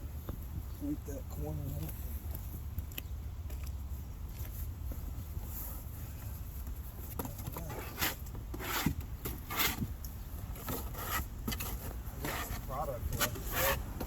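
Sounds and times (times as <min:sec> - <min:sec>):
trowel scraping on concrete: 0:07.7 - 0:09.9, 0:10.6 - 0:13.9.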